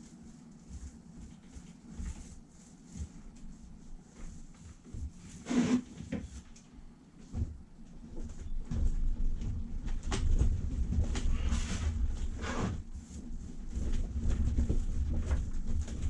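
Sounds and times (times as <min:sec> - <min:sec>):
paint roller swishing: 0:00.0 - 0:06.6.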